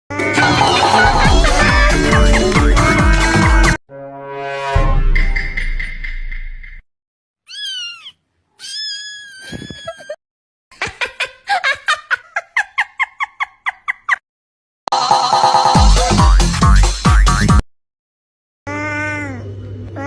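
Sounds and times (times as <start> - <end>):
cat meowing: 7.5 - 10.1.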